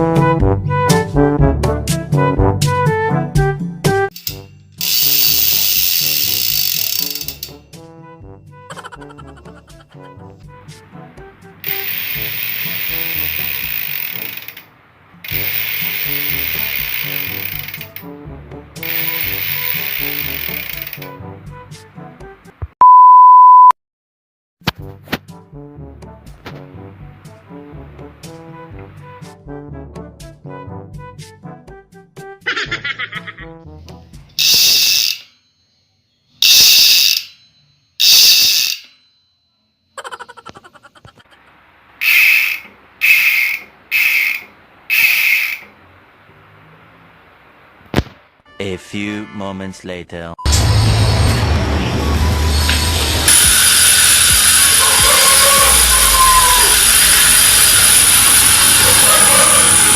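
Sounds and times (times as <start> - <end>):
bicycle freehub ratchet buzzing: 4.1 - 7.6, 11.6 - 14.6, 15.3 - 18.1, 18.8 - 21.1, 34.4 - 35.3, 36.4 - 37.4, 38.0 - 39.0, 42.0 - 45.7, 53.3 - 59.9.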